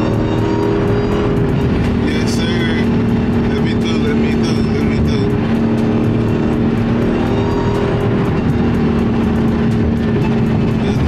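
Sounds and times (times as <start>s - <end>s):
car engine droning: 0.0s - 11.0s
tyre and road noise: 0.0s - 11.0s.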